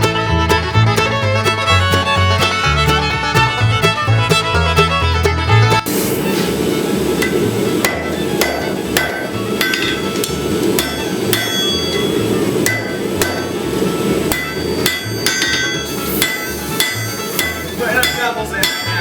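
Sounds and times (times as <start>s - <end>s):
forge rushing noise: 5.8s - 19.0s
hammer striking metal on anvil: 7.2s - 19.0s.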